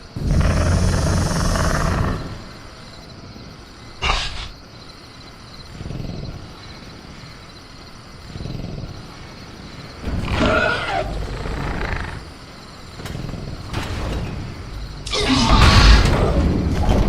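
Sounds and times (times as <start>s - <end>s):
faint cricket chirr: 0.0s - 17.0s
creature growling and snarling: 0.2s - 2.6s, 4.0s - 4.6s, 10.0s - 12.4s, 15.0s - 16.4s.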